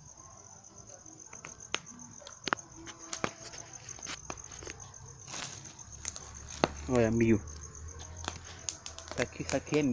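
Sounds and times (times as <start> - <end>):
crickets chirring: 0.0 - 9.9
sharp cracks and pops: 1.2 - 9.9.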